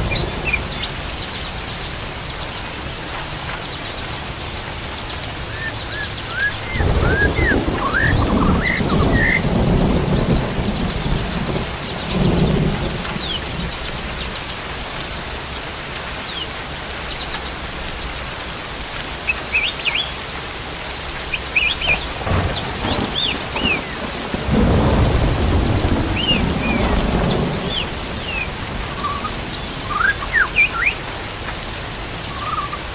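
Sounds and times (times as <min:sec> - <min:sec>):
thunder rumbling: 0:00.0 - 0:03.6, 0:05.5 - 0:15.3, 0:21.1 - 0:32.9
rain hissing: 0:00.0 - 0:32.9
small birds chirping: 0:00.0 - 0:32.9.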